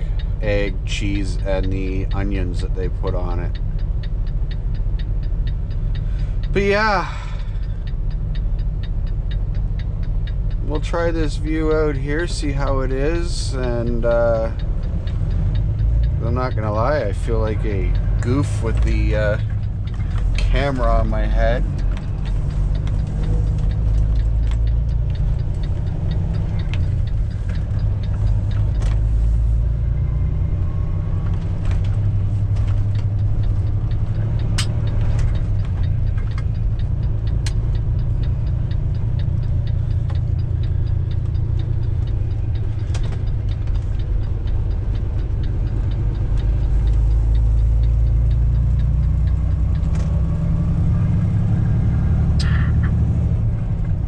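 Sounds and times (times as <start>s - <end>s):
light rapid ticking: 0.0s - 54.0s
road noise: 0.0s - 54.0s
truck diesel engine rumble: 0.0s - 54.0s.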